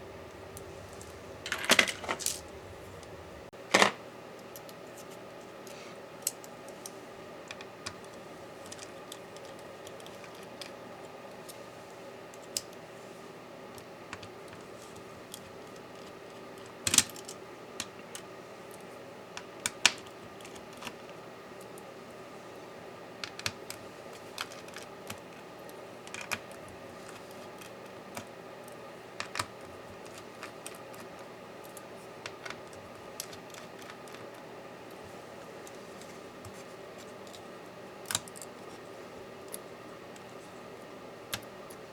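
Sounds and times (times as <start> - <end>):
faint steady hum: 0.0 - 41.9
small clicks and taps of tools: 13.8 - 16.1.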